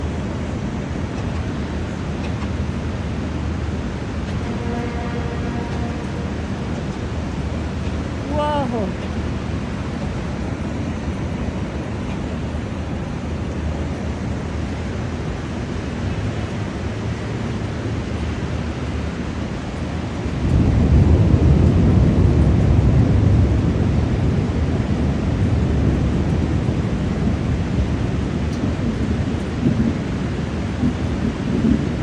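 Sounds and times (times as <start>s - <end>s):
thunder rolling: 0.0s - 11.8s, 18.4s - 32.0s
steady rain falling: 0.0s - 32.0s.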